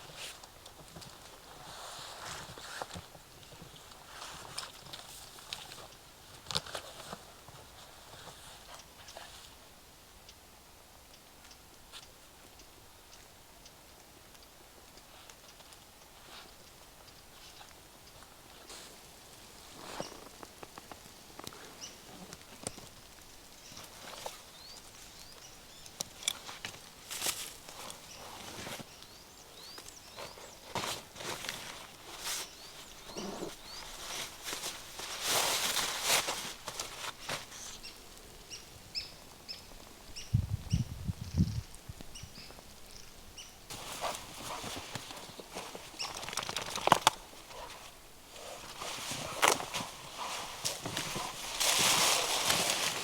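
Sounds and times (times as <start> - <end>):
faint outdoor hiss: 0.0 - 53.0
light taps clicks and crunches: 43.7 - 48.0.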